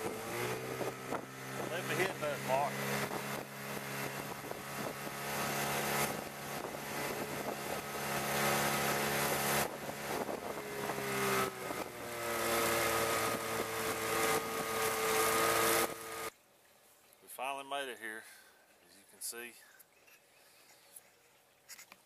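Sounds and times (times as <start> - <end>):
outboard motor running: 0.0 - 16.3.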